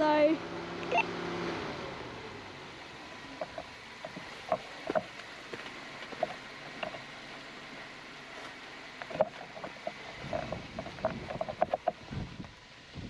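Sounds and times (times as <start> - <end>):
low engine hum: 0.0 - 13.0
tyres knocking and creaking on rock: 3.4 - 5.2, 6.0 - 7.1, 9.0 - 12.0.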